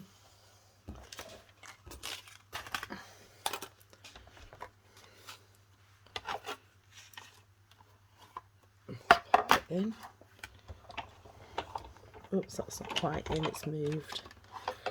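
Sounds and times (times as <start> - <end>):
plastic and metal plates clicking: 10.4 - 14.9.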